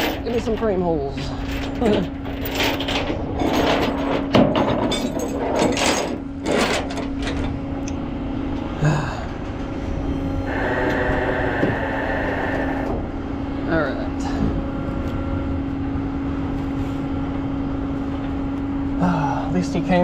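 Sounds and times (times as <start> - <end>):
chains clanking and rattling: 0.0 - 7.5
steady high whine: 0.0 - 20.0
truck engine humming: 7.1 - 19.8.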